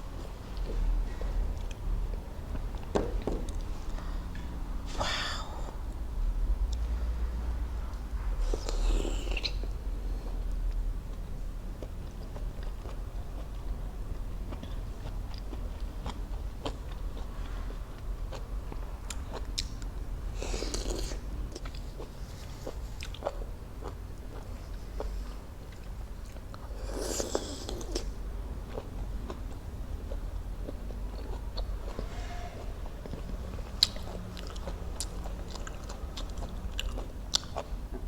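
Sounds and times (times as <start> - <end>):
steady low hum: 0.0 - 38.0
wet chewing with mouth clicks: 33.0 - 38.0.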